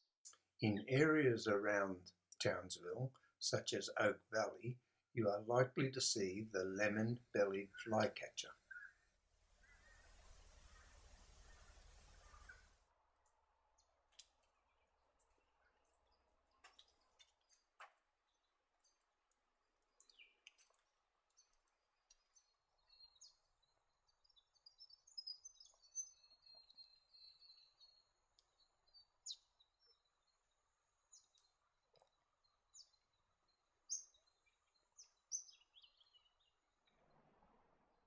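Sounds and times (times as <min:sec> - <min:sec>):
small bird chirping: 0:08.6 - 0:36.9.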